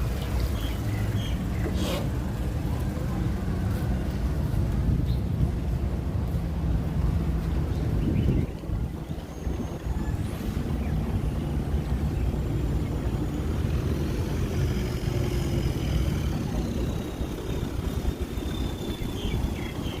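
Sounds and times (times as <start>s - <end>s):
boat engine running: 0.0s - 20.0s
wind noise: 3.6s - 20.0s.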